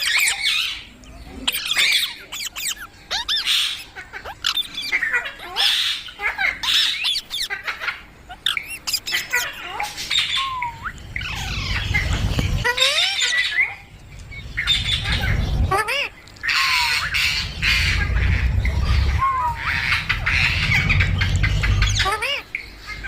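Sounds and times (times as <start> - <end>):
parrot squawking and whistling: 1.4 - 7.6, 8.3 - 13.9
low rumble: 10.4 - 12.9, 13.7 - 22.4.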